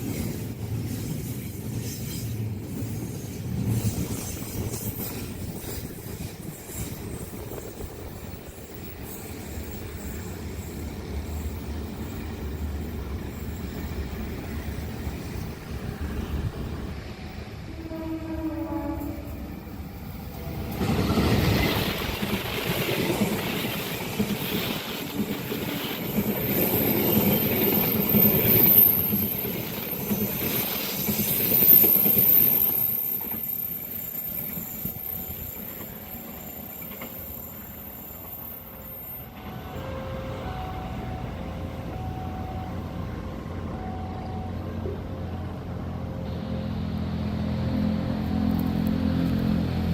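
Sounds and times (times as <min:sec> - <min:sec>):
train wheels rumbling: 0:00.0 - 0:49.9
high-pitched wheel squeal: 0:26.5 - 0:41.4.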